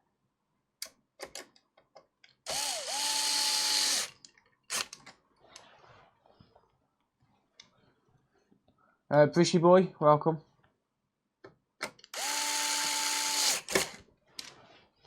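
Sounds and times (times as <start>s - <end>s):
small motorised tool whining: 2.5s - 4.9s, 12.2s - 14.0s.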